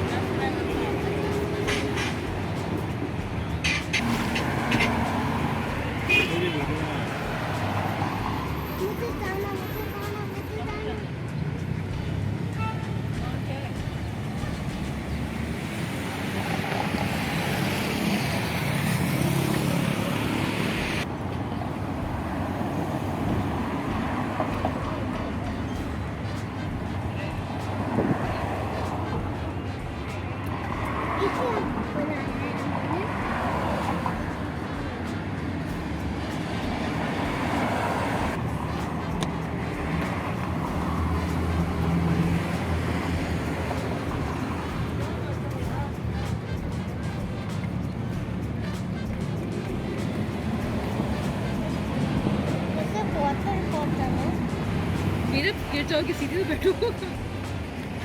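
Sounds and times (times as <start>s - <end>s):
boat diesel engine humming: 0.0s - 58.0s
wind and water hiss: 32.7s - 45.9s.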